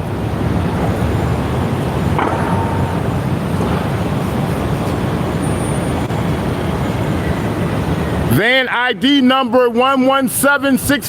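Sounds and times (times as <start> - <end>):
vehicle running close by: 0.0 - 8.3
street traffic rumble: 0.0 - 11.0.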